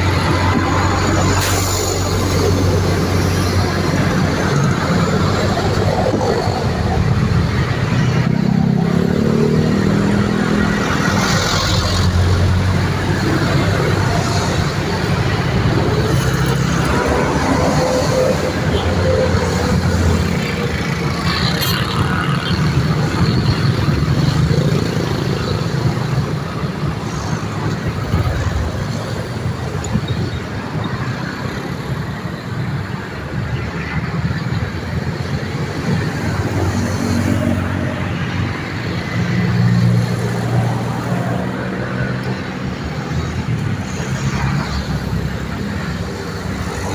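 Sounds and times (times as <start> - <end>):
road traffic passing: 0.0 - 46.9.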